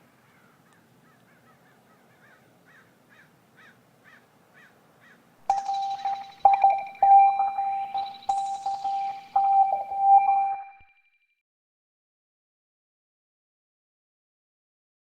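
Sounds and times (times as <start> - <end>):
keyboard music with held tones: 5.5 - 10.9.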